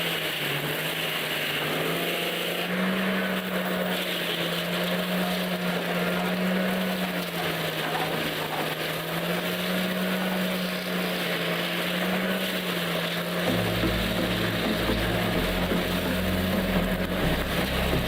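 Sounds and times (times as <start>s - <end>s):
machine engine running: 8.8s - 18.0s
low hum: 13.4s - 18.0s.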